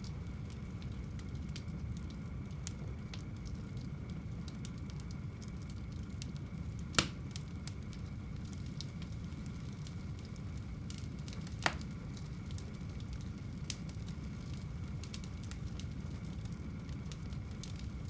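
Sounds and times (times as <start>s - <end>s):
fire crackling: 0.0s - 18.0s
wood fire burning: 0.0s - 18.0s.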